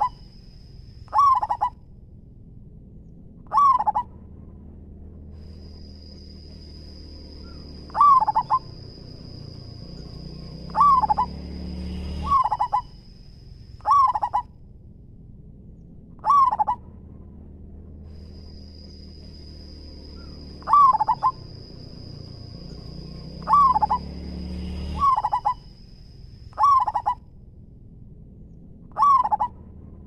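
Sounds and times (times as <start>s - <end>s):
dove cooing: 0.0s - 0.2s, 1.1s - 1.8s, 3.5s - 4.1s, 7.4s - 9.6s, 10.6s - 11.4s, 12.2s - 12.9s, 13.8s - 14.5s, 16.2s - 16.8s, 20.2s - 21.8s, 23.4s - 24.1s, 25.0s - 25.6s, 26.6s - 27.2s, 28.9s - 29.6s.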